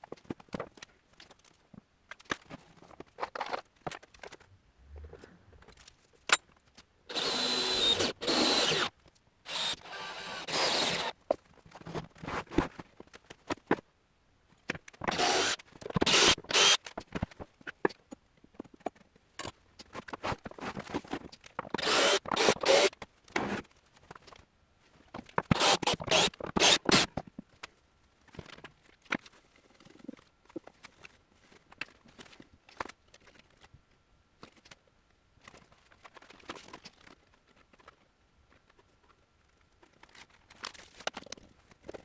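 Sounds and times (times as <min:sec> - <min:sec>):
power tool whining bursts: 0:07.1 - 0:08.9, 0:09.5 - 0:11.1, 0:15.1 - 0:16.8, 0:21.8 - 0:22.9.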